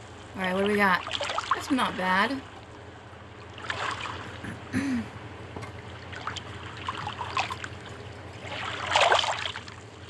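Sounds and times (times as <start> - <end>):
water lapping against boat hull: 0.6 - 4.7, 5.6 - 10.0.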